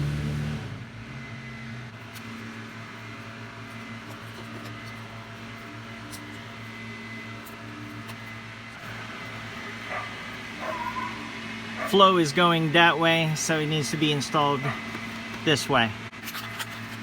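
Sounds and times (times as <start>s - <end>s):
low electrical hum: 0.8s - 17.0s.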